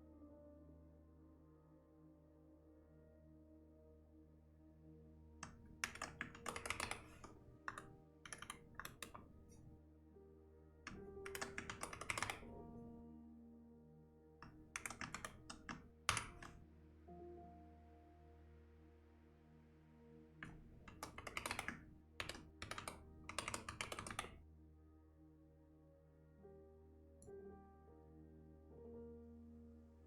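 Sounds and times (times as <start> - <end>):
soft ambient music: 0.0 - 30.0
typing on computer keyboard: 5.4 - 9.7, 10.9 - 12.8, 14.4 - 16.6, 20.4 - 24.4.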